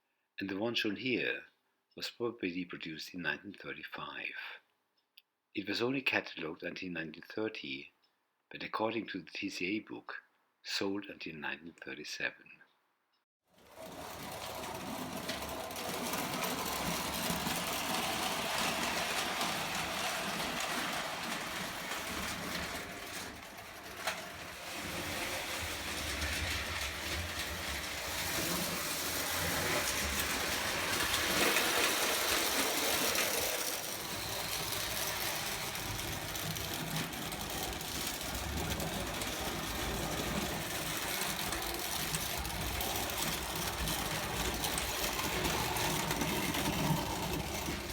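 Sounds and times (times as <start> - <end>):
toy train motor whirring: 13.6 - 47.9
wheels rattling over rails: 13.6 - 47.9.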